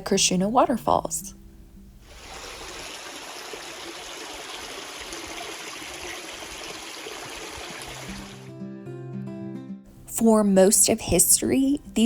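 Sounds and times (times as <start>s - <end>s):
waterfall stream rushing: 2.1s - 8.5s.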